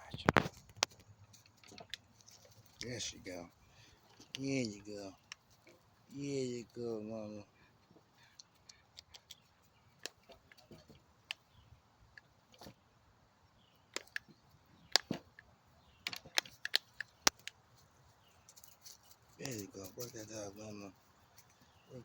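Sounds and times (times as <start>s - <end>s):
rope clicks and snaps: 8.2s - 11.6s, 13.9s - 17.6s.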